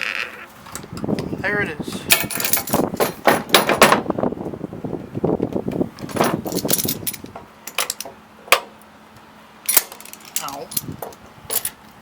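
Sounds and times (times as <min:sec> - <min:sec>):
metal tools clinking: 0:00.7 - 0:03.8, 0:06.0 - 0:08.1, 0:09.7 - 0:11.8.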